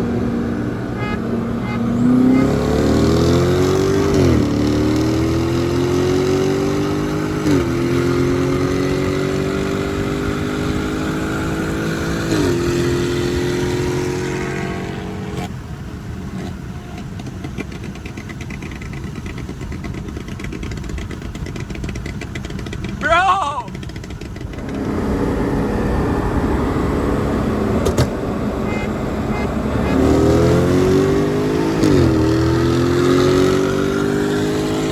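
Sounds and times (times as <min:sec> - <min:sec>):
car engine at full throttle: 0:00.0 - 0:34.9
wind and road noise: 0:00.0 - 0:34.9
gear upshifts: 0:20.1 - 0:34.9.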